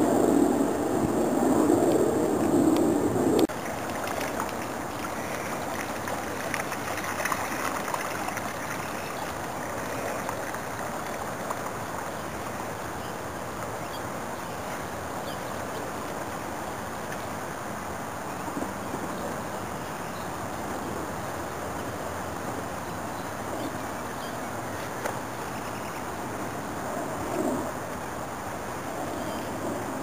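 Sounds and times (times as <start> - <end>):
steady water noise: 0.0 - 30.0.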